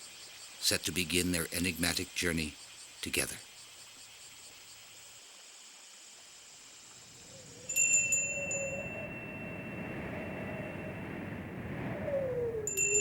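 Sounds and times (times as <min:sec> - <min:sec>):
bell-like chime ringing: 0:07.7 - 0:09.8.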